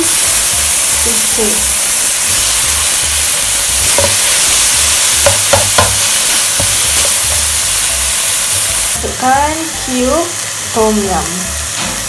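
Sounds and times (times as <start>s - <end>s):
meat sizzling in hot oil: 0.0s - 12.0s
spatula scraping and knocking pan: 3.9s - 4.5s, 5.2s - 6.8s.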